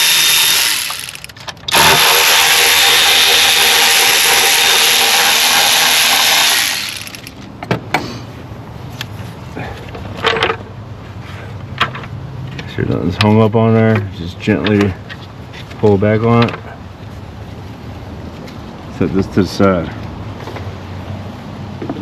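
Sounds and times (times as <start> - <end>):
power tool spinning: 0.0 - 7.4
parts clicking and knocking: 0.0 - 8.0.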